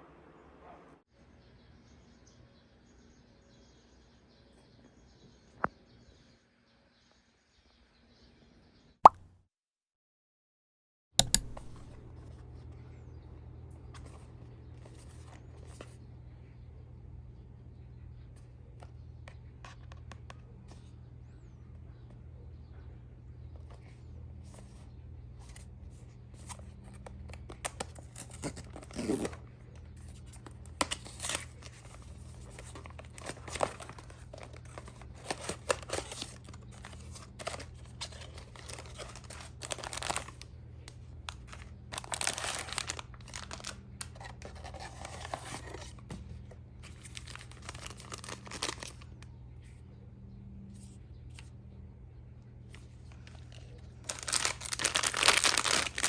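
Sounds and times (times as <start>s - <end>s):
faint low hum: 11.2s - 56.0s
packaging tearing and crinkling: 30.8s - 40.5s, 41.3s - 46.0s, 46.9s - 49.1s, 54.0s - 56.0s.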